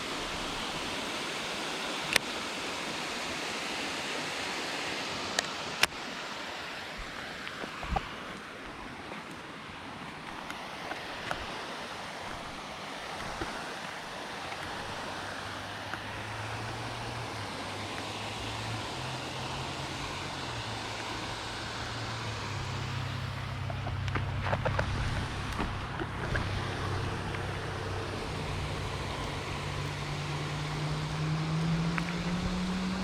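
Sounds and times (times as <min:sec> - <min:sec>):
water: 0:00.0 - 0:33.0
wind: 0:00.0 - 0:33.0
low engine drone: 0:14.3 - 0:33.0.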